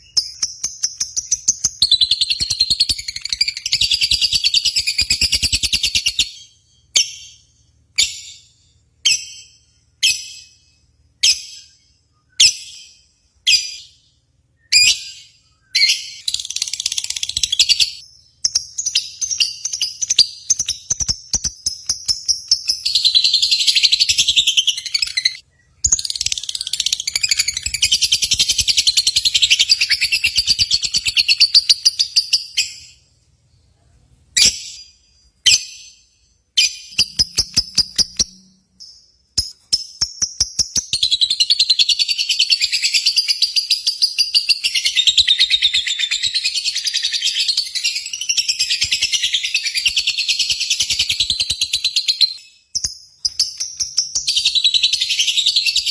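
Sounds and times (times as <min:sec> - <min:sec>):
lovebird trilling: 0:14.7 - 0:32.8, 0:36.6 - 0:38.9.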